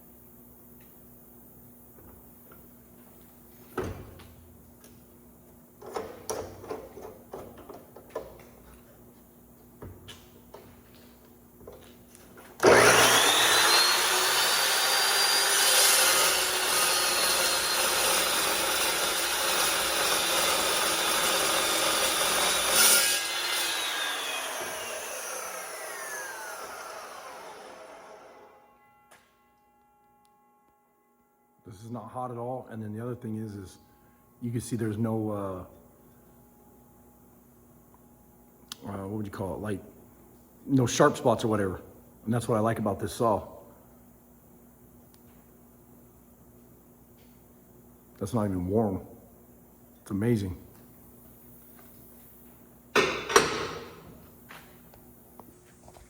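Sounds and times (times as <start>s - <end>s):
metal saw whining and cutting: 12.6s - 28.8s.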